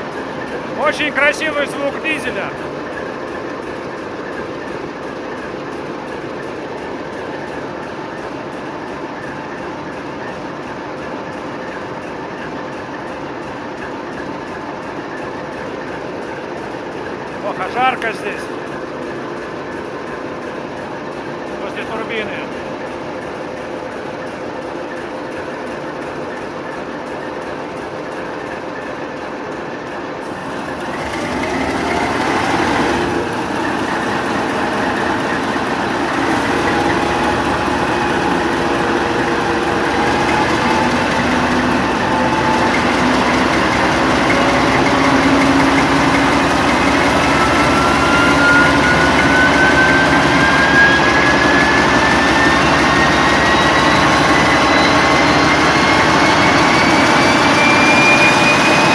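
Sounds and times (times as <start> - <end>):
diesel engine running under load: 0.0 - 58.9
turbocharger whistle rising: 31.0 - 58.9.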